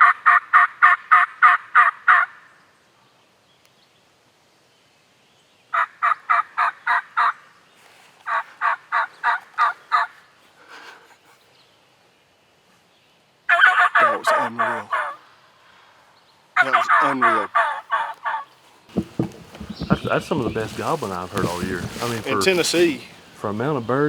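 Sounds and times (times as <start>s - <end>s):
turkey yelping: 8.3s - 10.2s, 13.5s - 15.2s, 16.6s - 18.5s.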